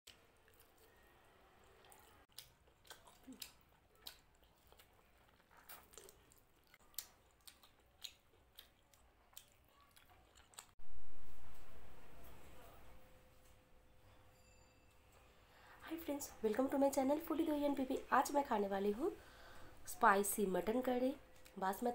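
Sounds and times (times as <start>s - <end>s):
close-up chewing: 0.1s - 10.8s
steady low background noise: 10.8s - 14.3s.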